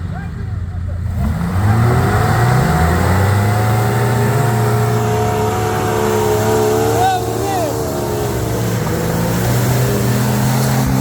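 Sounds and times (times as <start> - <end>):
motocross bike engine revving: 1.0 - 11.0.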